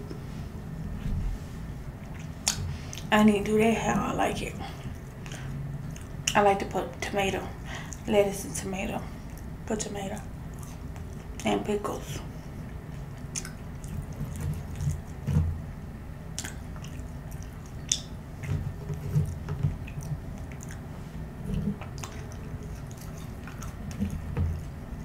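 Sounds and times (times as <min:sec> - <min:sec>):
chewing fries: 0:02.0 - 0:03.1, 0:04.6 - 0:06.5, 0:10.2 - 0:11.6, 0:12.2 - 0:15.7, 0:16.3 - 0:25.0.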